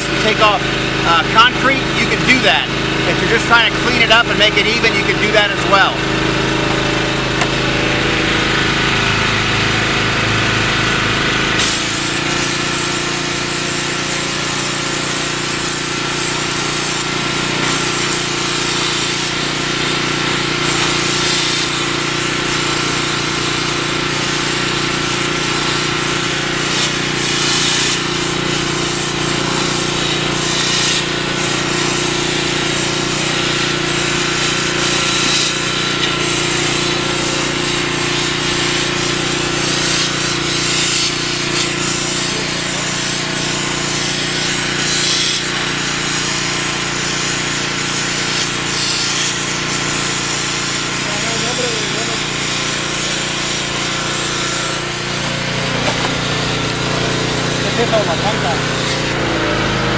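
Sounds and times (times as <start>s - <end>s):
pressure washer engine running: 0.0s - 59.9s
water and sand jet blasting concrete: 0.0s - 59.9s.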